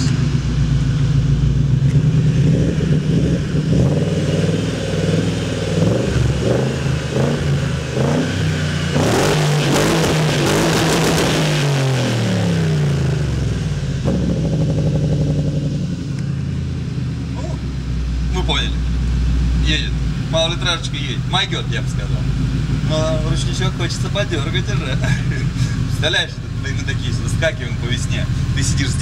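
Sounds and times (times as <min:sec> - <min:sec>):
race car engine idling and revving: 0:00.0 - 0:29.0.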